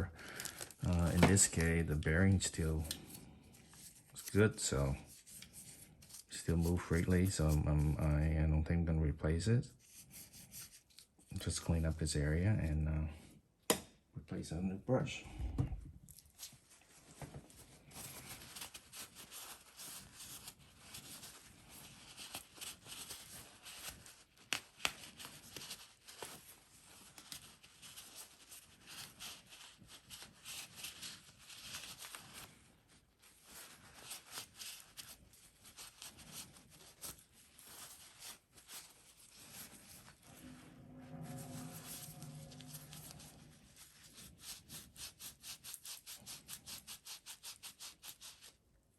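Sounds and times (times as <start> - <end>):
scratchy rubbing and scraping: 0.6 - 8.4, 9.8 - 12.4, 16.3 - 48.6.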